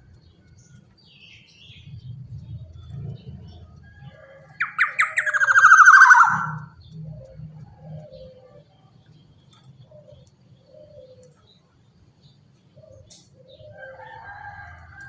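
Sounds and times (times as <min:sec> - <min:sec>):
bird harsh rasping call: 0:04.6 - 0:06.7
sharp bird notes: 0:04.6 - 0:06.8
faint bird notes: 0:04.6 - 0:08.6.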